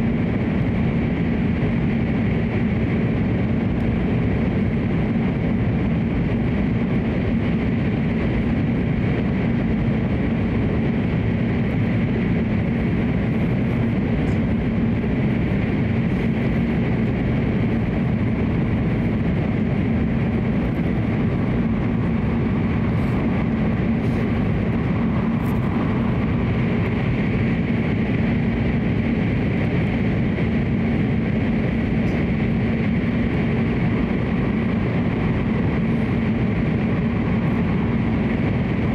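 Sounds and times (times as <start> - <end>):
train cabin rumble: 0.2 - 38.9.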